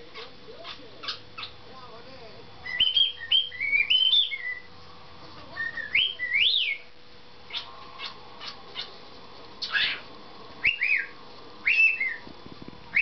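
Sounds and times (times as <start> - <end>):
cockatiel chirps: 0.1 - 1.6, 2.6 - 4.7, 5.6 - 6.9, 7.5 - 8.9, 9.6 - 12.3
cockatiel whistling: 2.6 - 4.7, 5.6 - 6.9, 9.6 - 10.0, 10.6 - 12.3.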